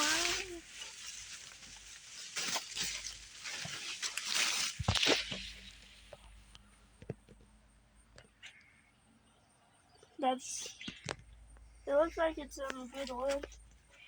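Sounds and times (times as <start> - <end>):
scrapes rustles and clicks: 0.0 - 6.4, 12.6 - 14.0.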